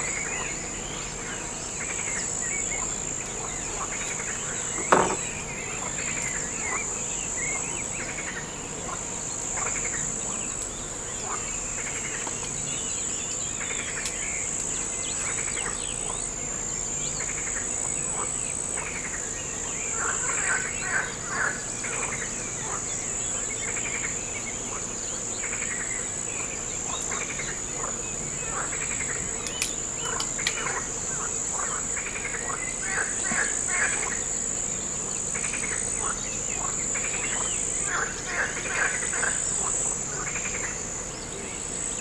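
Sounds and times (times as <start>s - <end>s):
insects chirring: 0.0s - 42.0s
birds chirping: 1.5s - 8.0s.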